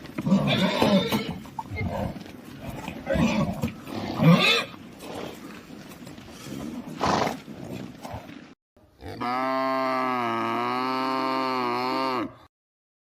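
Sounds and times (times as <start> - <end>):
cow mooing: 9.0 - 12.4.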